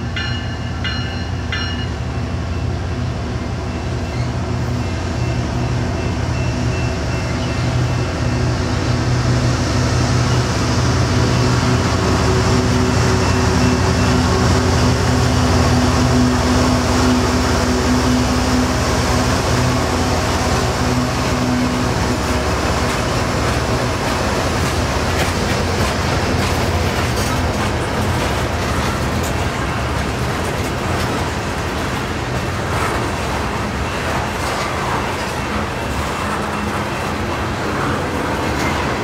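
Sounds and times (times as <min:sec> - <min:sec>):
freight cars rumbling on rails: 0:00.0 - 0:39.0
locomotive engine drone: 0:00.0 - 0:39.0
train wheels clicking: 0:10.2 - 0:39.0.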